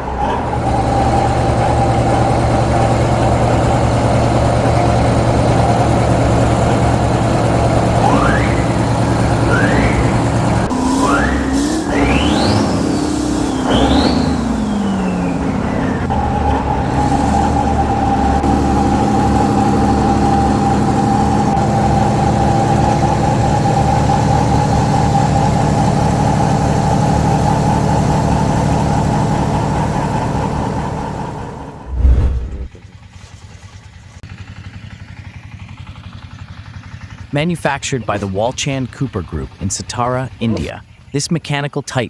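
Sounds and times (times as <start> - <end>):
diesel engine at even beat: 0.0 - 33.2, 33.8 - 42.0
diesel engines running: 0.0 - 42.0
loud thump: 31.8 - 32.8.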